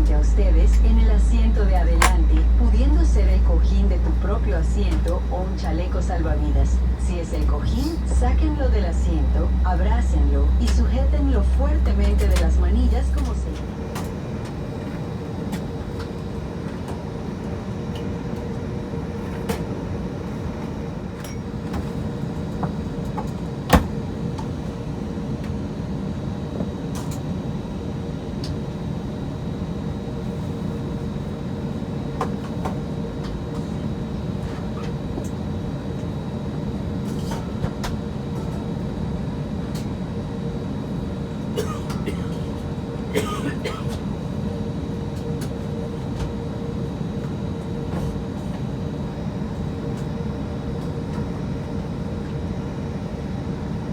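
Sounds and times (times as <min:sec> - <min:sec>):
aircraft cabin rumble: 0:00.0 - 0:53.9
steady hum: 0:00.0 - 0:53.9.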